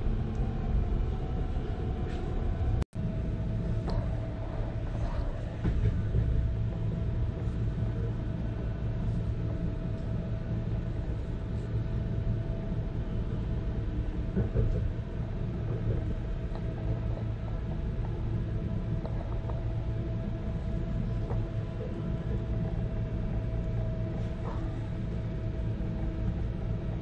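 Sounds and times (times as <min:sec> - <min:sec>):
thin steady whine: 0:00.0 - 0:27.0
train low rumble: 0:00.0 - 0:27.0.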